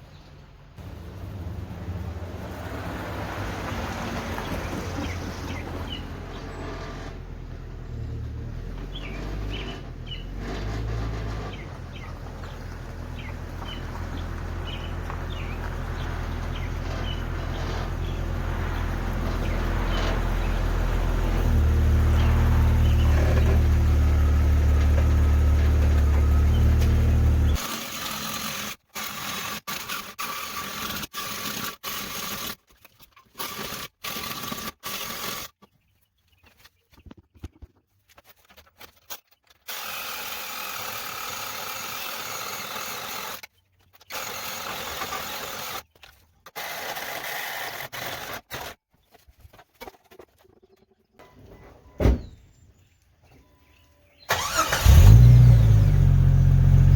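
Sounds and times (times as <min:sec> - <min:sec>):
car engine idling: 0:00.8 - 0:27.6, 0:54.3 - 0:56.9.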